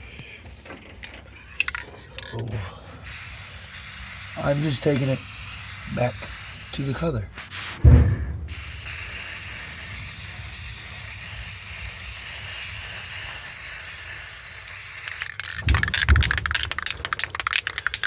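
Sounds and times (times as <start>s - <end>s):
spray can being shaken: 3.0s - 7.8s, 8.5s - 18.0s
spray paint can hissing: 3.0s - 7.9s, 8.5s - 18.0s.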